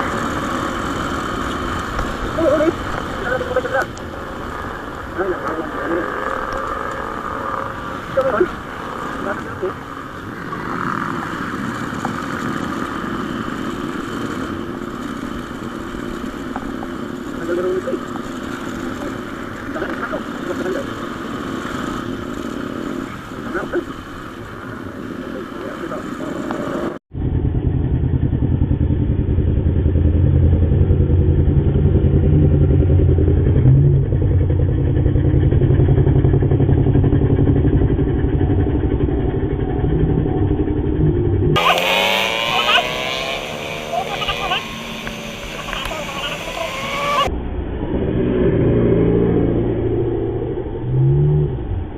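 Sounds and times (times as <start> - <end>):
road and wind noise: 0.0 - 51.9
motorcycle engine running: 25.8 - 47.4.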